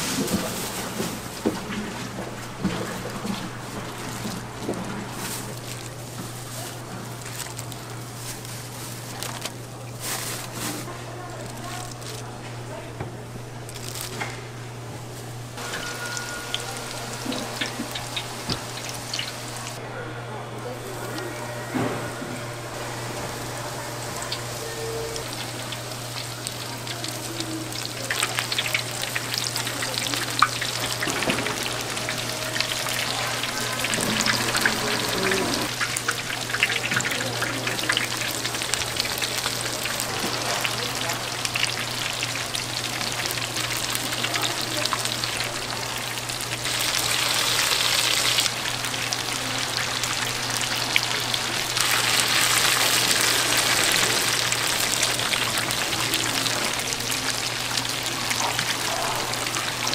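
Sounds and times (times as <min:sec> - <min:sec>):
food sizzling in hot oil: 0:15.6 - 0:19.8, 0:22.6 - 0:59.9.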